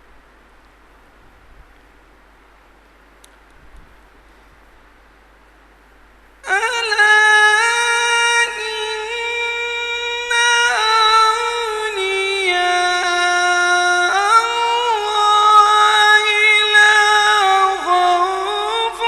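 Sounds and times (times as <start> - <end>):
man reciting melismatic chant: 6.4 - 19.0.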